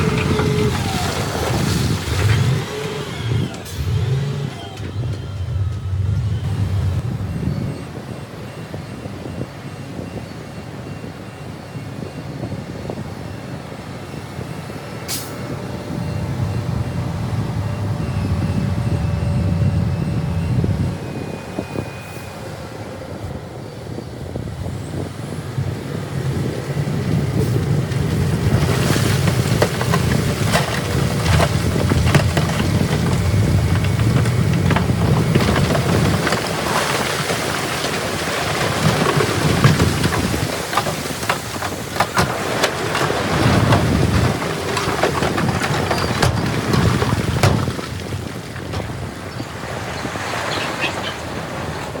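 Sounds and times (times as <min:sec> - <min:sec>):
heavy diesel engine rumble: 0:00.0 - 0:52.0
knocks and crashes: 0:27.9 - 0:49.2.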